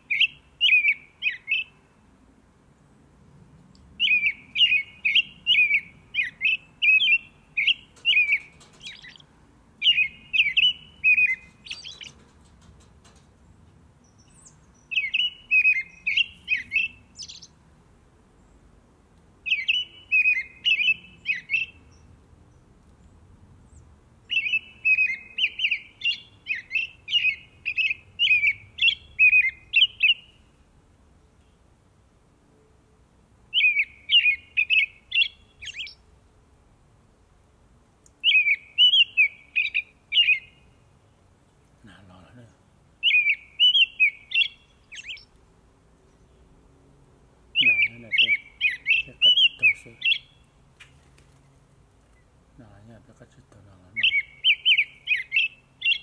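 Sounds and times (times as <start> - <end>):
small bird chirping: 0.0 - 1.8, 4.0 - 17.6, 19.4 - 30.5, 33.5 - 36.1, 38.1 - 40.9, 41.8 - 45.4, 47.6 - 52.8, 53.7 - 56.0.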